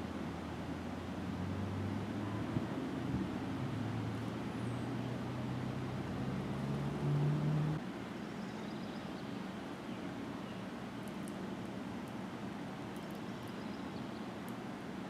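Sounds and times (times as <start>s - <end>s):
vehicle engine humming: 0.0s - 7.8s.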